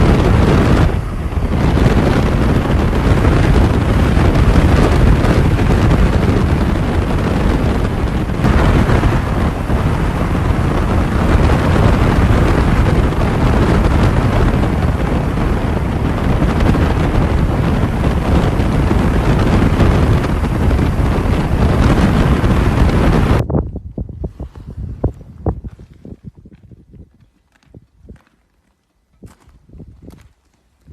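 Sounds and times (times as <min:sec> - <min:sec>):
motorcycle engine: 0:00.0 - 0:23.4
wind buffeting microphone: 0:00.0 - 0:28.4, 0:29.1 - 0:30.9.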